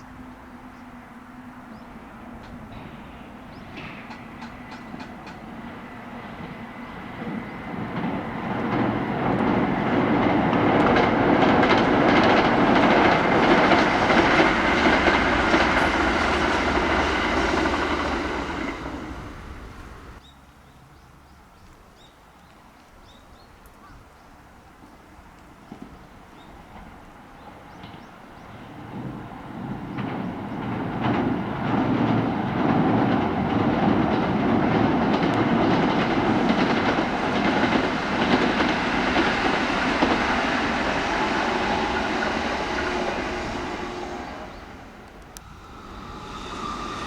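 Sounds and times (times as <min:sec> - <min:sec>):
electric train passing: 0:00.0 - 0:20.2, 0:26.6 - 0:47.0
wheels clicking over rail joints: 0:02.3 - 0:20.2, 0:25.4 - 0:41.0.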